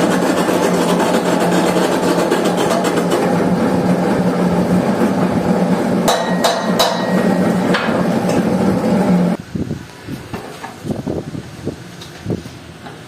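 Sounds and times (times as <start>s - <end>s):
steady hum: 0.0s - 10.2s
metallic hammer strikes: 6.0s - 8.6s.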